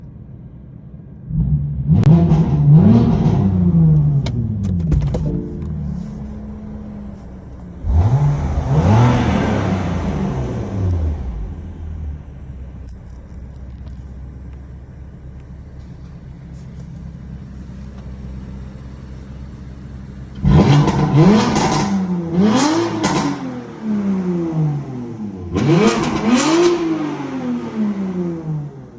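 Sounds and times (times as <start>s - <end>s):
car engine idling: 0.0s - 1.8s, 3.4s - 25.5s
car engine revving: 1.3s - 12.8s, 20.3s - 28.9s
exhaust pops: 3.9s - 6.0s.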